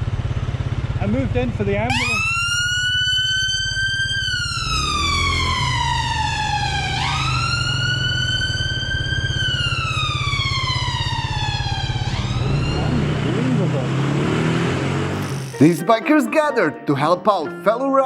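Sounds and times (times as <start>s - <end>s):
motorcycle engine running: 0.0s - 15.6s
ambulance siren wailing: 1.9s - 16.6s.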